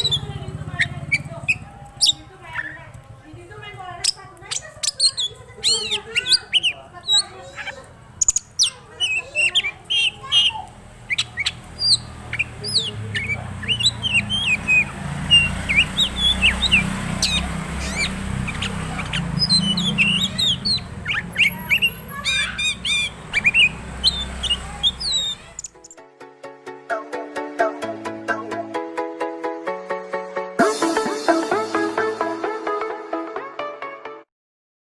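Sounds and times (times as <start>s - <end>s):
bird singing whistles and trills: 0.0s - 2.8s, 4.0s - 26.0s.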